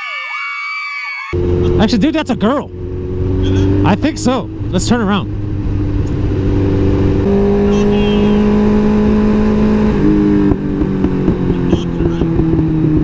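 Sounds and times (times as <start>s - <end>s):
wind rumble: 1.3s - 7.9s
motorcycle engine accelerating: 1.3s - 13.0s.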